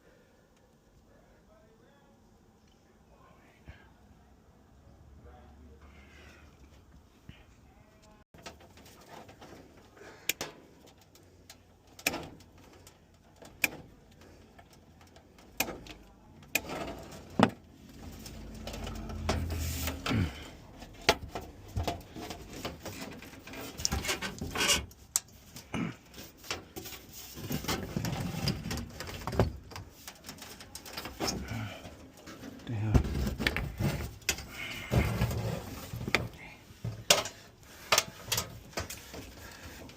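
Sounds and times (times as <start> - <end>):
metal scraping: 16.5 - 24.9.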